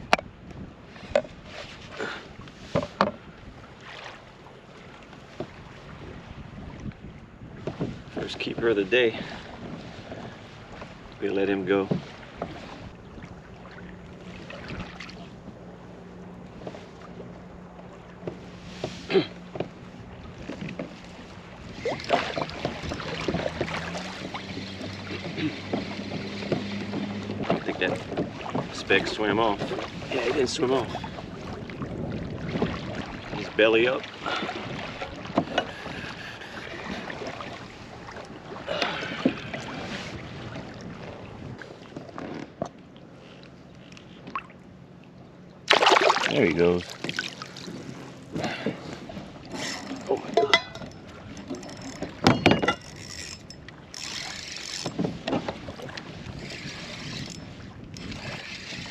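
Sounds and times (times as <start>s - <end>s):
wind on microphone: 0.0s - 3.8s, 5.8s - 11.1s, 20.1s - 41.7s, 54.2s - 58.9s
water splashing and lapping: 0.0s - 58.9s
sharp knocks on hull: 21.8s - 28.8s, 52.0s - 52.8s.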